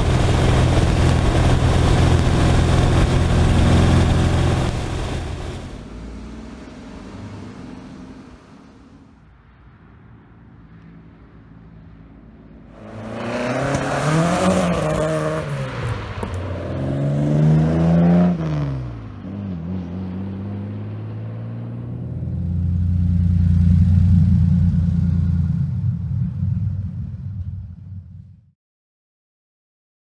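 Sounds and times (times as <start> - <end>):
car engine revving: 0.0 - 9.2, 12.7 - 27.8
deep steady engine rumble: 0.0 - 9.6, 22.2 - 28.4.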